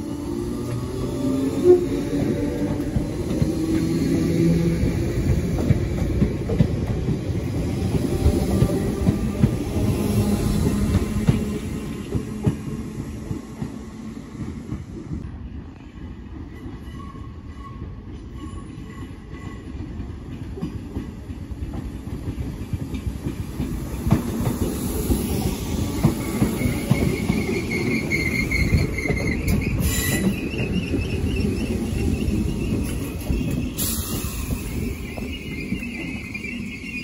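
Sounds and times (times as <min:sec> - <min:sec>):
train wheels rumbling on rails: 0:00.0 - 0:37.0
high steady squeal: 0:26.2 - 0:37.0.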